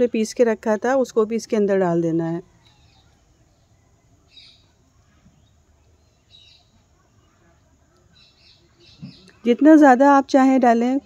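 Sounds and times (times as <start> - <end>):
bird chirps: 2.6 - 9.5.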